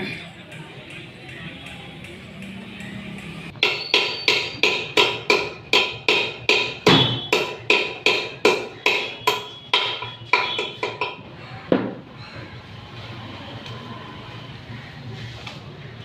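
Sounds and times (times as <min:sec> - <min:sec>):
hammer tapping on metal: 0:03.5 - 0:11.2.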